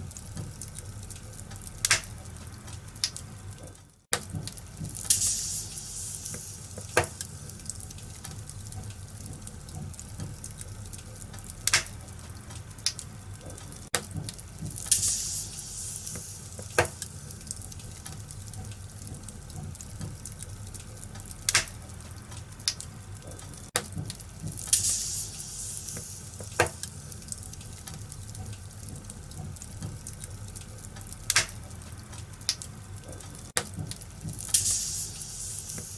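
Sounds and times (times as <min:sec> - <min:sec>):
fire crackling pops: 0:00.0 - 0:35.9
low rumble of flames: 0:00.0 - 0:35.9
fire hiss: 0:04.7 - 0:09.6, 0:14.4 - 0:19.4, 0:24.2 - 0:28.3, 0:34.0 - 0:35.9.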